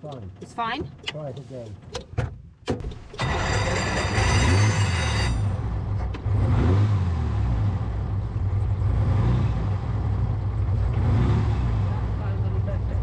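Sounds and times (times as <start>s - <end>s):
starter motor whining: 3.0s - 4.5s.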